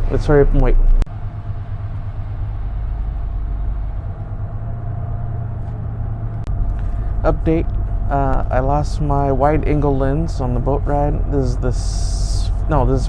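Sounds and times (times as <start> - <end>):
bus engine rumbling: 0.0 - 13.0.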